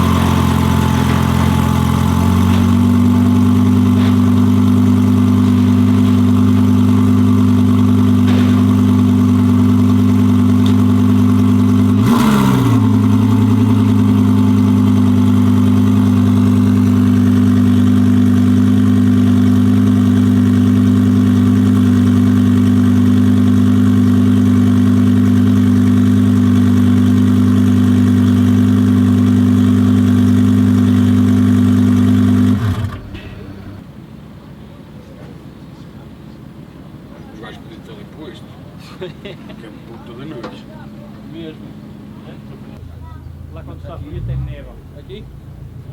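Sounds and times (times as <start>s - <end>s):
car engine idling: 0.0s - 45.9s
short burst of engine noise: 32.4s - 38.0s, 41.7s - 45.9s.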